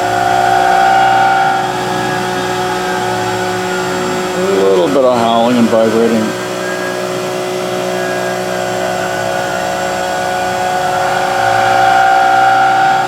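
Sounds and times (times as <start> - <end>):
milling cutter howling: 0.0 - 13.0
man speaking: 4.4 - 6.4.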